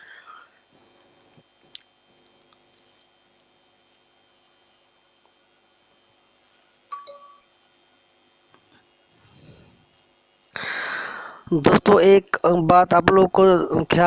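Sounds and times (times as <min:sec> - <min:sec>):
metallic clinks: 0:06.9 - 0:07.4.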